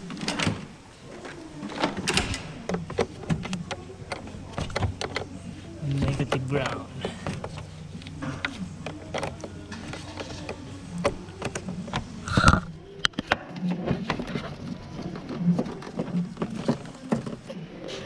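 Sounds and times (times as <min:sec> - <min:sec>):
hand tools clicking and knocking: 0:01.2 - 0:13.4.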